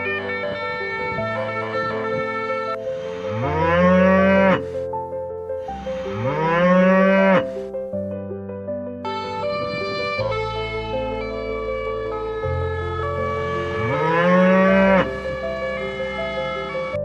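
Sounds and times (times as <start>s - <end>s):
background music: 0.0s - 17.0s
cow mooing: 2.9s - 4.8s, 5.7s - 7.6s, 13.0s - 17.0s.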